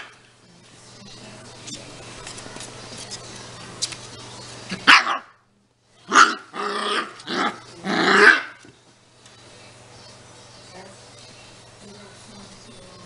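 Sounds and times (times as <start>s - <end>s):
puppy barking and growling: 4.7s - 5.4s, 6.1s - 8.6s.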